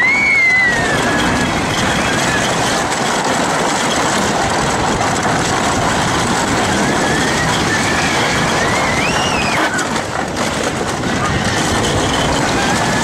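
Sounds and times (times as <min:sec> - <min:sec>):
high squeal: 0:00.0 - 0:02.8, 0:06.7 - 0:10.0
roller coaster rattling on track: 0:00.0 - 0:13.0.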